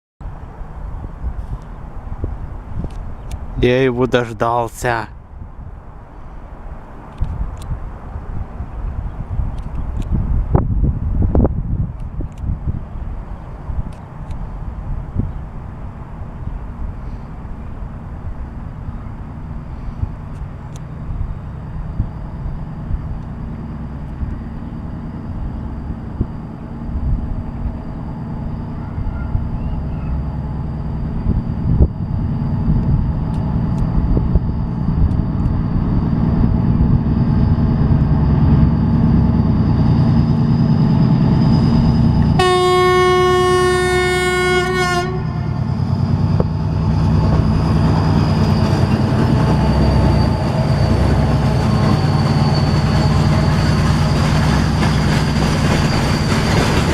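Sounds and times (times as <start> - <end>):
locomotive engine rumble: 0.3 - 56.9
train horn blast: 42.4 - 45.7.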